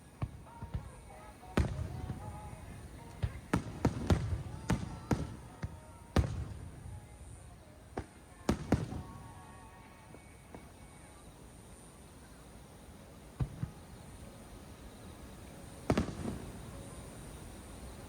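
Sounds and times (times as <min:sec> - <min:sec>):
firework shells bursting with echo: 0:00.2 - 0:09.6, 0:13.4 - 0:14.0, 0:15.7 - 0:18.0.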